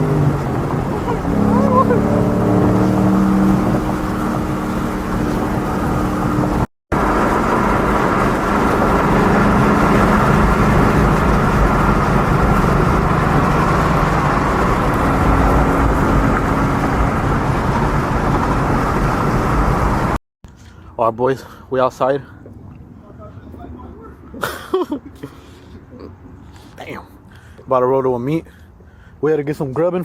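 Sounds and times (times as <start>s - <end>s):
loud car exhaust: 0.0s - 20.2s.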